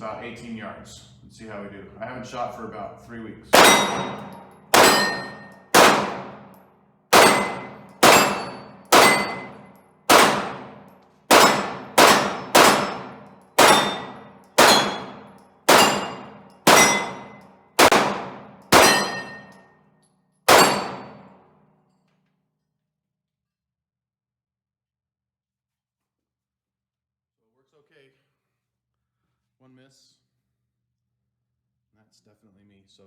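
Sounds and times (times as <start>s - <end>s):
steel target ringing: 3.6s - 6.5s, 7.2s - 19.6s, 20.5s - 21.3s
pistol shots: 3.6s - 19.5s, 20.5s - 21.3s.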